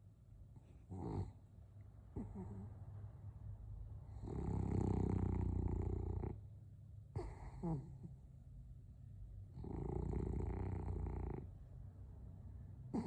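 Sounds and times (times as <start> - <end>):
dog snoring: 0.8 - 1.4, 2.2 - 2.8, 4.1 - 6.4, 7.1 - 8.2, 9.5 - 11.6.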